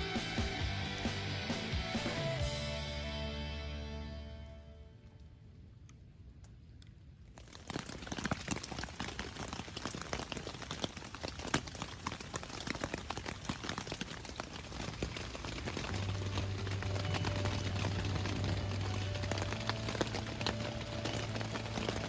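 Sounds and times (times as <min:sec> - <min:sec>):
rain pattering: 0:07.2 - 0:22.0.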